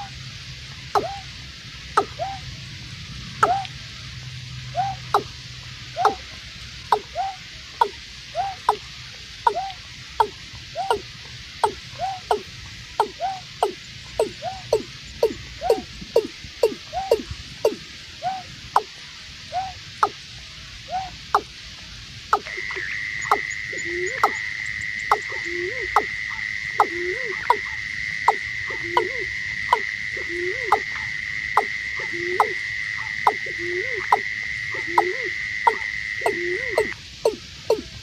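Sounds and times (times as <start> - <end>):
bird calling hollow low notes: 0.8 - 21.5, 22.3 - 38.0
steady high-pitched tone: 22.3 - 38.0.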